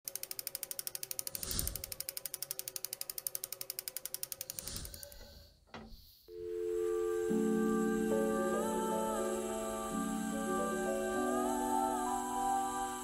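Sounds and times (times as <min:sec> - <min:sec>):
rapid mechanical clicking: 0:00.0 - 0:05.1.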